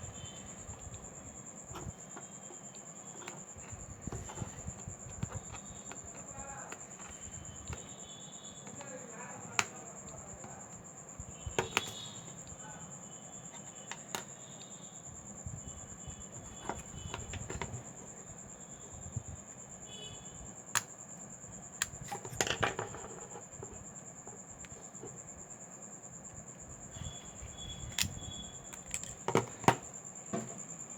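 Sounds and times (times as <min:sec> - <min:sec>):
small tools clicking on phone: 0:21.8 - 0:23.0, 0:27.8 - 0:29.5.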